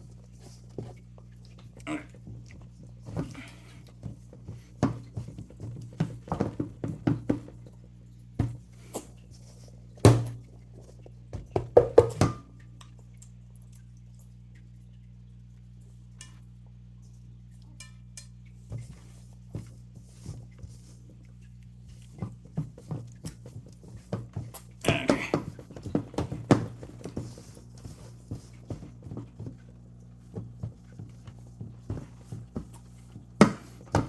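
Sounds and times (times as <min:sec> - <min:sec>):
low steady hum: 0:00.0 - 0:34.0
dough mixing knocks against bowl: 0:10.0 - 0:10.6, 0:11.3 - 0:12.5, 0:22.1 - 0:34.0.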